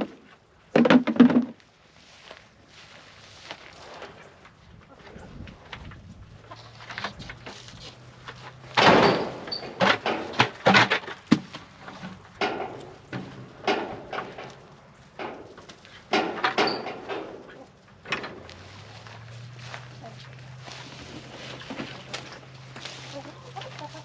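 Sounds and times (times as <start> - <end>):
sharp knocks and clatters: 0.0 - 1.6, 6.8 - 18.6.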